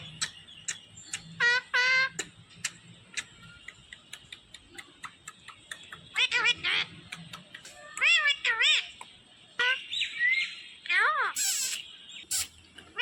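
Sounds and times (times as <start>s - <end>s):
sharp clicks: 2.1s - 6.2s, 7.0s - 8.2s.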